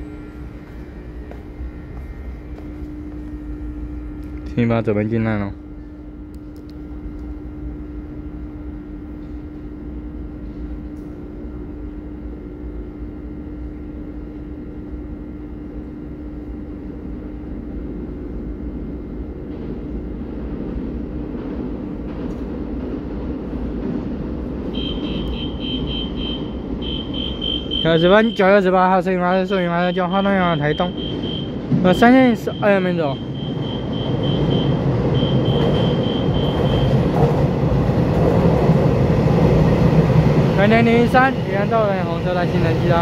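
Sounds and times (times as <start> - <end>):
steady hum: 0.0 - 21.2, 22.7 - 43.0
train approaching rumble: 0.0 - 43.0
rapid high-pitched beeping: 24.8 - 37.1.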